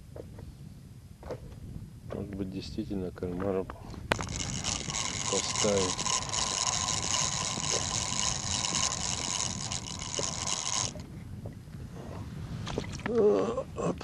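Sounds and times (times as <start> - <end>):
fishing reel gear whir: 4.1 - 11.2.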